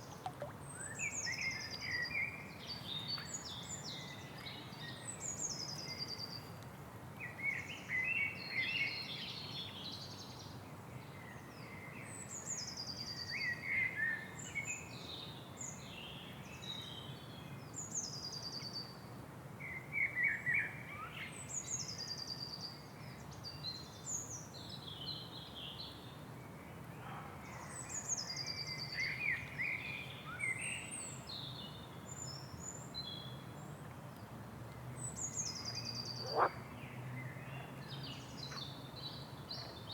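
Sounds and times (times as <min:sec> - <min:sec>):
birds chirping and warbling: 0:35.1 - 0:36.6.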